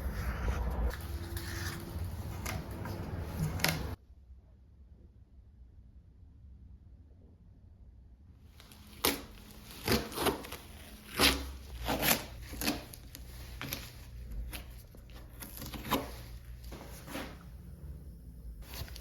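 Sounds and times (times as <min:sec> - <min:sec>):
hand tool scraping filler: 0:00.9 - 0:04.0, 0:08.7 - 0:17.7.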